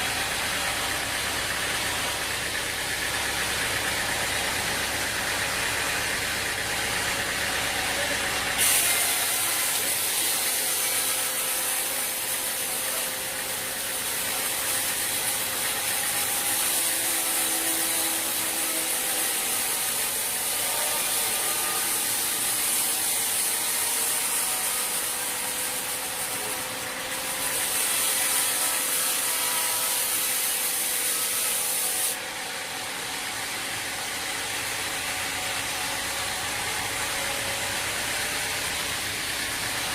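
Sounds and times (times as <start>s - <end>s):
saw cutting wood: 0.0s - 39.9s
machine hum: 32.2s - 39.9s.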